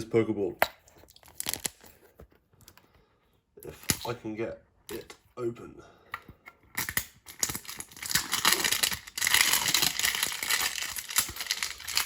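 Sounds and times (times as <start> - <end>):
plastic wrapping crinkling and tearing: 1.1 - 2.0, 6.8 - 12.0.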